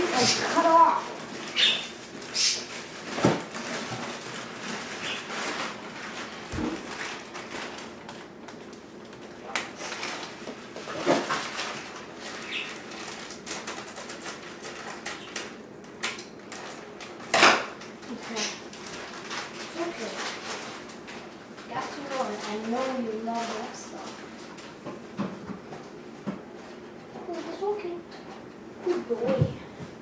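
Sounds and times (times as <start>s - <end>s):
budgerigar chirps: 1.6s - 1.8s.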